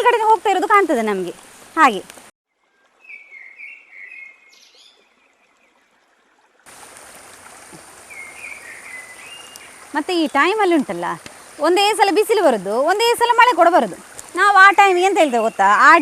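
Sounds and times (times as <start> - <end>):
running water hiss: 0.0 - 16.0
bird chirping: 3.0 - 5.7, 7.8 - 11.0.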